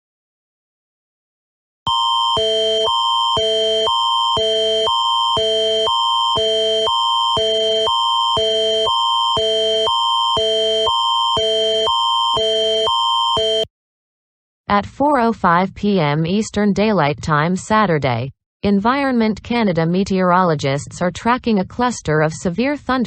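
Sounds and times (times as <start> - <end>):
electronic emergency alarm tones: 1.9 - 13.7.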